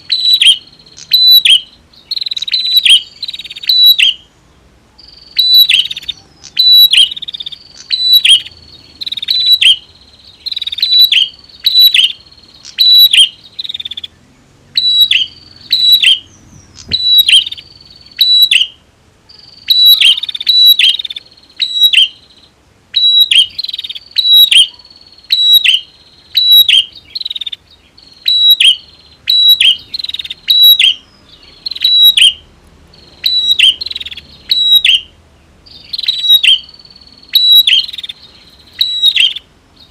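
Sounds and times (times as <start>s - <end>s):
birds calling sharp falling notes: 5.1s - 18.8s.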